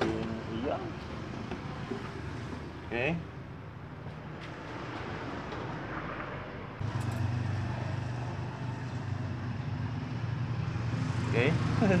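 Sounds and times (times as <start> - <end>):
low motor hum: 6.8 - 12.0.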